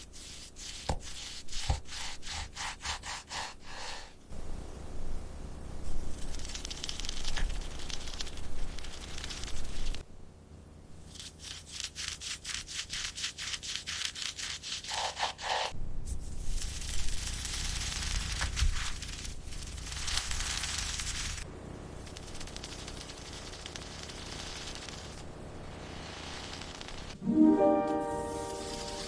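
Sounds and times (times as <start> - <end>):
rubbing and scraping strokes: 0.0 - 4.2, 11.0 - 27.2, 28.0 - 29.0.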